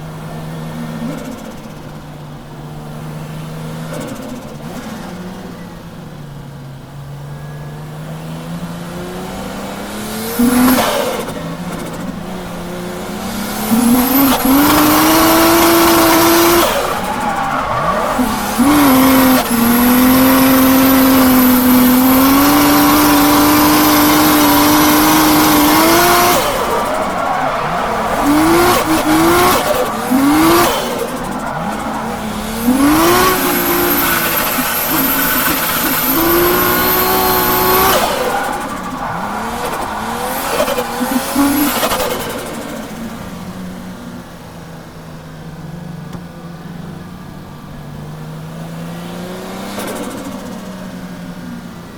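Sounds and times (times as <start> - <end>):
engine rev blips: 0.0 - 43.6
turbocharged engine at high revs: 0.0 - 51.9
tyres squealing: 13.5 - 42.3.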